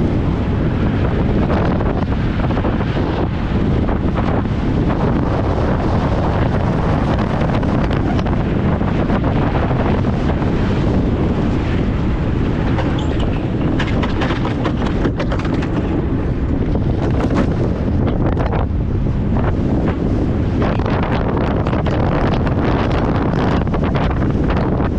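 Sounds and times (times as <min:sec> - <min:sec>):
wheels rumbling on road: 0:00.0 - 0:24.9
wind buffeting microphone: 0:00.0 - 0:24.9
car knocks and rattles: 0:12.2 - 0:18.6.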